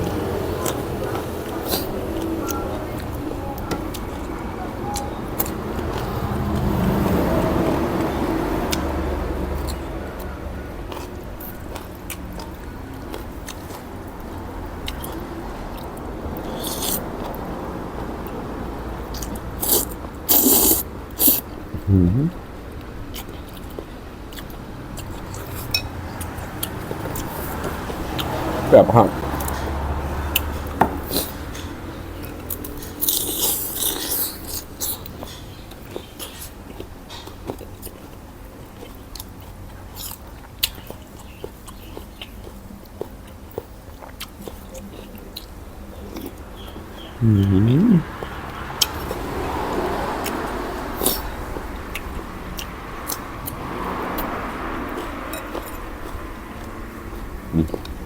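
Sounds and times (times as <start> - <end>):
mouth noises of eating: 0.3 - 4.2, 16.4 - 17.4, 19.1 - 22.6, 23.2 - 29.4, 38.8 - 49.2, 54.1 - 58.0.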